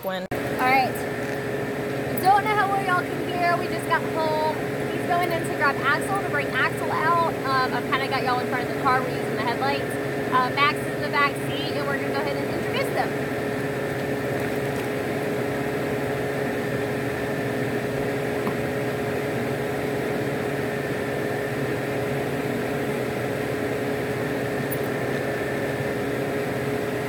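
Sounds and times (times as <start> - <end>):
car engine idling: 0.0 - 19.5.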